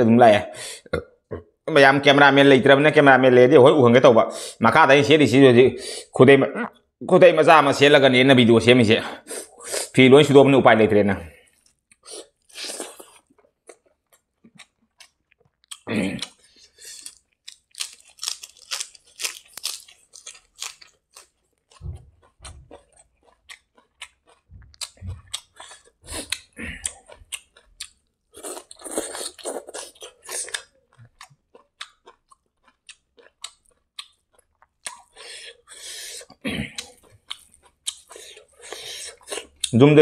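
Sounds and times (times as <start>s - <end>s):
chewing and crunching leaves: 16.9s - 35.0s.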